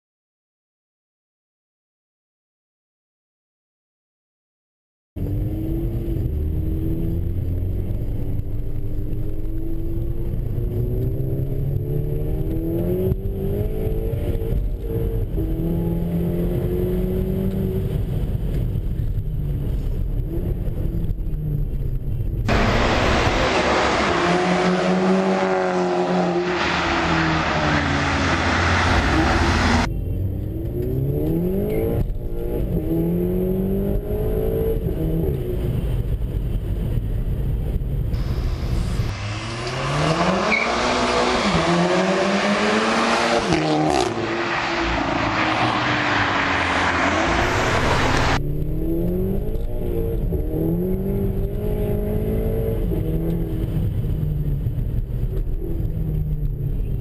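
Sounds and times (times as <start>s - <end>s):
loud rushing noise: 22.5s - 29.9s, 38.1s - 48.4s
turbocharged engine revving: 22.5s - 29.9s, 38.2s - 53.7s.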